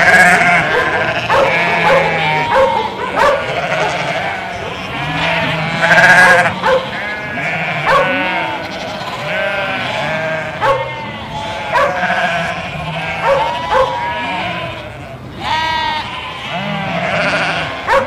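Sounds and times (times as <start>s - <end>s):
dog barking: 0.0s - 7.1s, 7.8s - 8.5s, 10.3s - 11.0s, 11.6s - 14.4s, 17.8s - 18.0s
sheep bleating: 0.0s - 18.0s.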